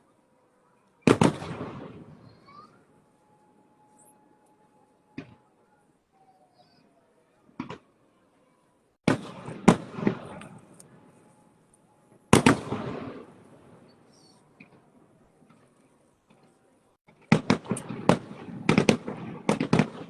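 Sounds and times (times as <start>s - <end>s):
fireworks bangs: 1.0s - 3.0s, 9.0s - 20.0s.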